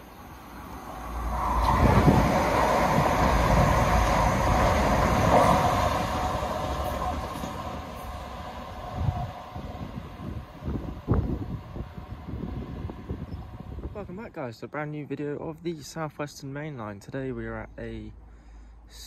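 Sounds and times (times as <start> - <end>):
electric train passing at speed: 0.0 - 14.4.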